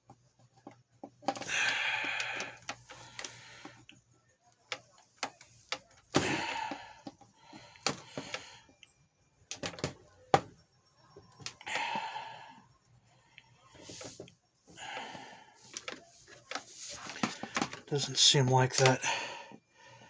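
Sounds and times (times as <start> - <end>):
plastic clicks and knocks: 9.5 - 10.6, 15.7 - 17.9
plastic scraping: 15.0 - 18.0.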